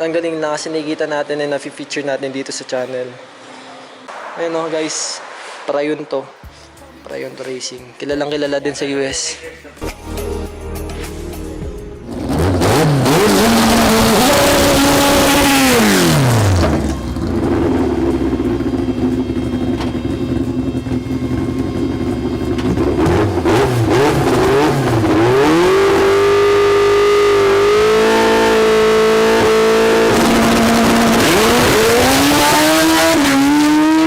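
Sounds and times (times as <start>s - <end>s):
race car engine revving: 12.0s - 34.0s.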